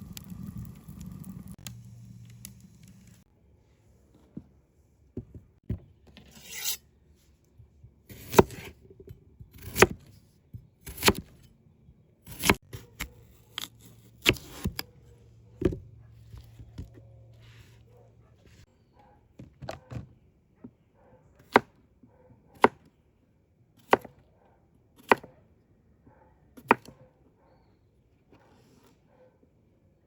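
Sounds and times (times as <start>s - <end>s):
scraping and rubbing: 6.2s - 6.8s.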